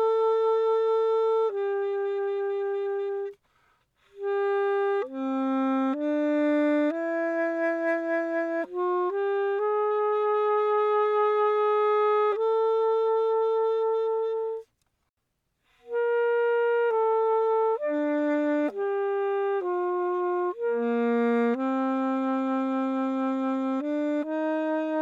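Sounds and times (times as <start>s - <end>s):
alto saxophone melody: 0.0s - 14.8s, 15.6s - 25.0s.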